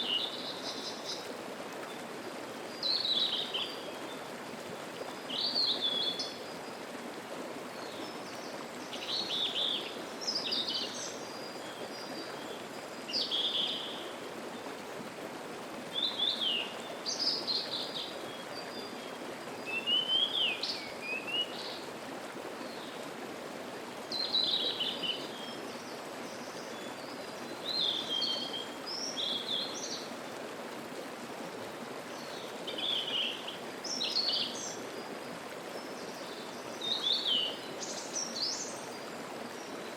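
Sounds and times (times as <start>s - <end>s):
mountain stream rushing: 0.0s - 39.9s
songbird singing: 2.7s - 4.3s, 7.8s - 14.1s, 15.9s - 21.8s, 32.2s - 35.2s, 35.8s - 39.9s.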